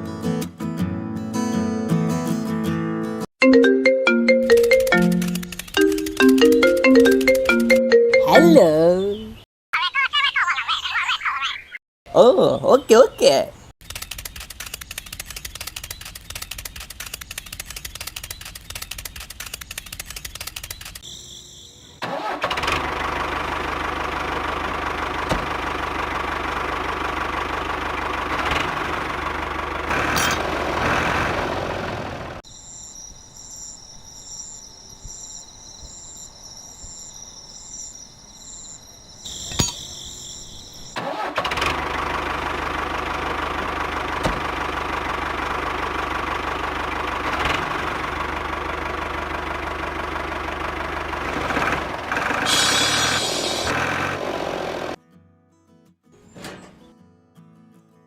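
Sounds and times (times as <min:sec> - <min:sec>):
small engine running: 0:04.7 - 0:07.6, 0:22.0 - 0:32.4, 0:41.0 - 0:55.0.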